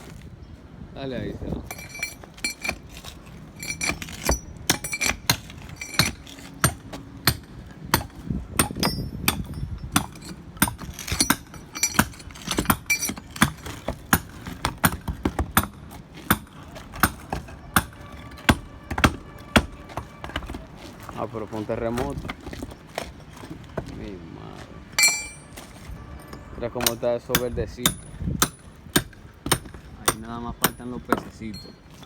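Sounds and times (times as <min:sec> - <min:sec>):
concrete chipping: 0:01.6 - 0:24.1, 0:25.0 - 0:32.0
hammer striking steel chisel: 0:01.7 - 0:20.6, 0:25.0 - 0:25.6, 0:26.3 - 0:31.8.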